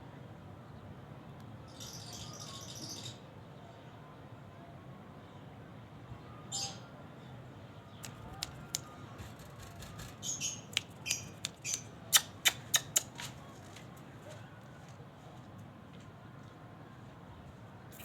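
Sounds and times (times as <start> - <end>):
lovebird chirping: 8.0 - 13.1
sharp clicks: 8.0 - 13.2.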